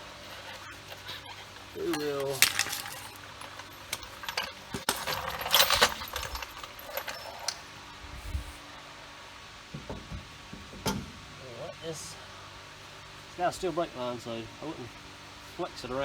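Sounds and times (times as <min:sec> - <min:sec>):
metal tools clinking: 0:00.3 - 0:07.7.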